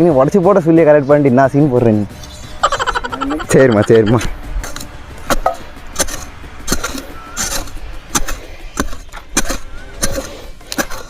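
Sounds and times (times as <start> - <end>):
hand tool striking wood: 4.6 - 11.0.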